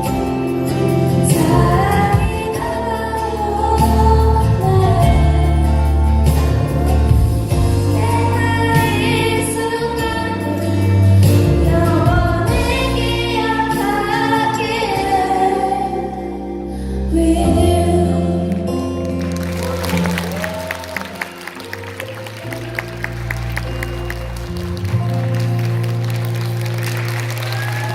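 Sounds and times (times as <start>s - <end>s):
singers with instrumental accompaniment: 0.0s - 21.6s
audience applause: 19.0s - 27.9s.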